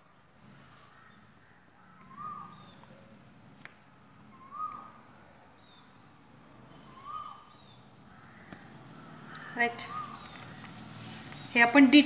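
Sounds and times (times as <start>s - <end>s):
bird calling: 0.9s - 3.2s, 4.2s - 5.9s, 6.6s - 11.8s.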